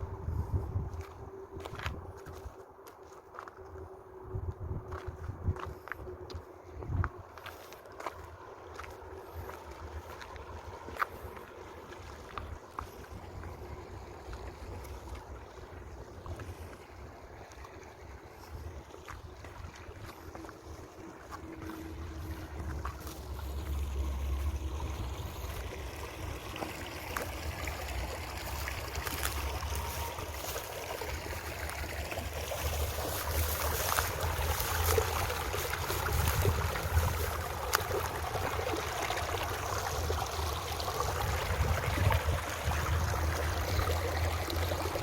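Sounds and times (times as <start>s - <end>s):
wind rumbling on microphone: 0.0s - 2.8s, 3.4s - 7.6s, 8.3s - 45.0s
small crackles and ticks: 5.0s - 13.7s, 17.5s - 24.6s, 26.4s - 39.1s.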